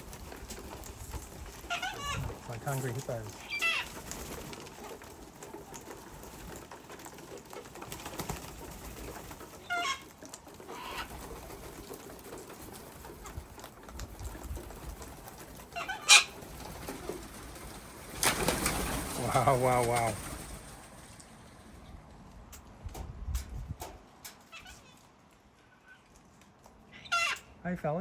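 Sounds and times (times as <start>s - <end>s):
low steady background noise: 0.0s - 28.0s
corellas squawking: 1.4s - 6.5s, 7.2s - 11.6s, 15.5s - 17.3s, 24.4s - 26.1s, 26.8s - 27.6s.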